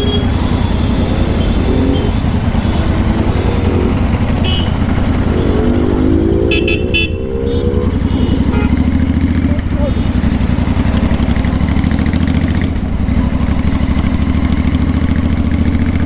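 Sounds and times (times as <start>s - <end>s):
vehicle horn: 0.0s - 10.7s
motorcycle engine revving: 0.0s - 16.0s.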